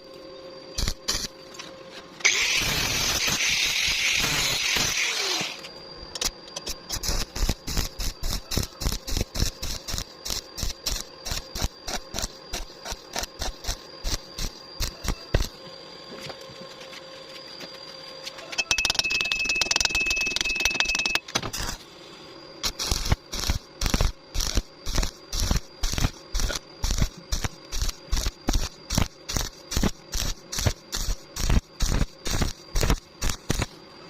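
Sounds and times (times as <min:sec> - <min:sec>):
welding arc crackling: 0:00.8 - 0:01.3, 0:02.2 - 0:05.6, 0:06.7 - 0:15.6, 0:22.6 - 0:33.8
short stitch-welding bursts: 0:02.2 - 0:05.6, 0:06.9 - 0:15.5, 0:22.6 - 0:33.7.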